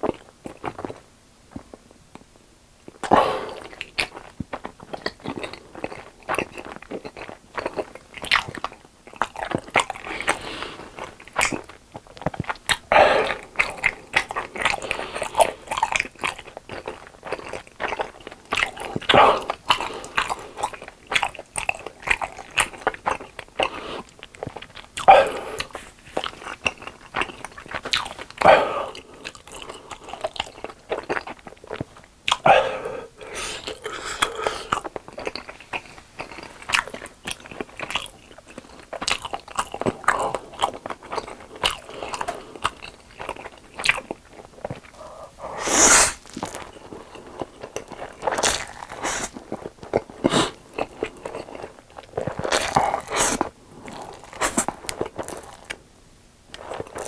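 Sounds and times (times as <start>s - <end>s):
crunchy chewing: 0.0s - 2.3s, 2.9s - 55.8s, 56.5s - 57.0s
mouth noise bursts: 45.0s - 46.4s.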